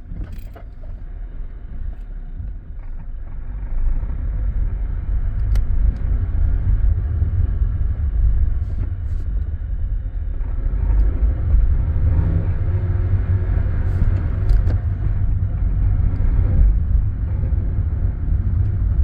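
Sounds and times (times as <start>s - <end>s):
car accelerating rumble: 0.0s - 19.0s.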